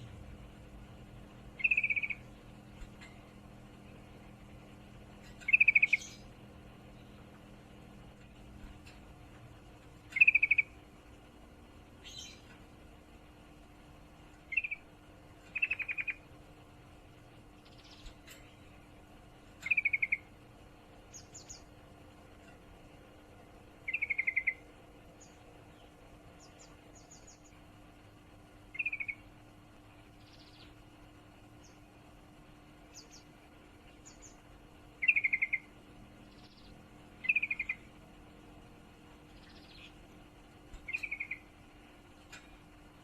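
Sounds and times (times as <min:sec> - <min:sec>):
faint high chirps: 0:01.5 - 0:03.3, 0:05.2 - 0:07.3, 0:10.0 - 0:10.8, 0:14.4 - 0:16.3, 0:23.8 - 0:27.6, 0:35.0 - 0:37.9, 0:40.7 - 0:41.6
bird rapid chattering calls: 0:01.6 - 0:02.9, 0:05.2 - 0:06.3, 0:10.1 - 0:10.8, 0:15.5 - 0:16.3, 0:19.6 - 0:20.3, 0:23.9 - 0:24.6, 0:28.7 - 0:29.2, 0:35.0 - 0:35.7, 0:37.2 - 0:37.9, 0:40.8 - 0:41.5.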